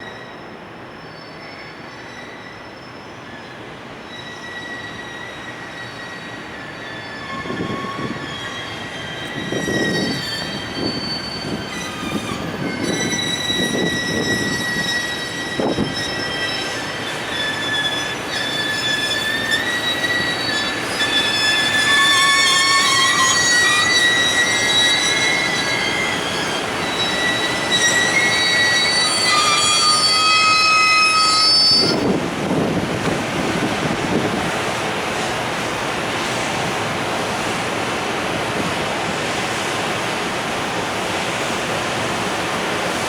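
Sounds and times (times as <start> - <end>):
train wheels squealing: 0.0 - 32.2.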